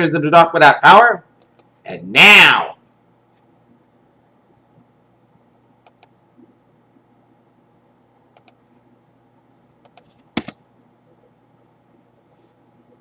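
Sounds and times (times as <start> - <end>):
faint room hum: 0.0 - 13.0
sharp computer clicks: 1.4 - 1.7, 5.8 - 6.2, 8.3 - 8.6, 9.8 - 10.6.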